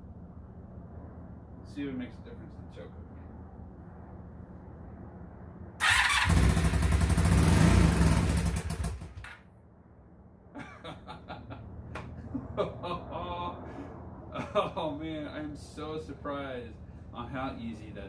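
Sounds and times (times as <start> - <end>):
motorcycle engine running: 5.8 - 9.2.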